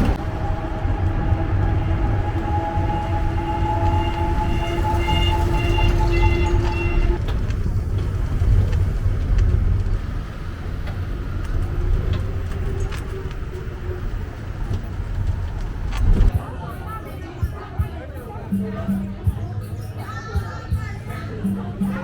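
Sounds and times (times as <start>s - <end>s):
rumble of wheels and wind: 0.0s - 16.5s.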